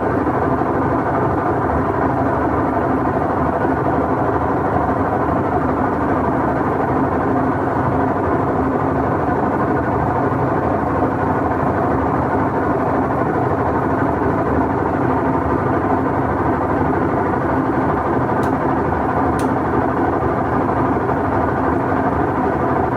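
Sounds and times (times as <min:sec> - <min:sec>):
washing machine droning: 0:00.0 - 0:22.9
short clicks: 0:19.4 - 0:19.6.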